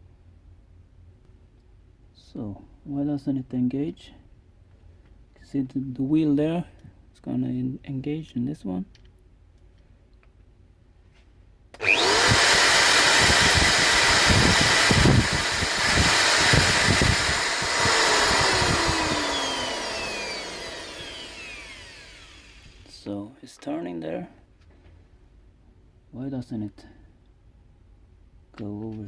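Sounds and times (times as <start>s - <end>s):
angle grinder motor whine: 11.8s - 23.0s.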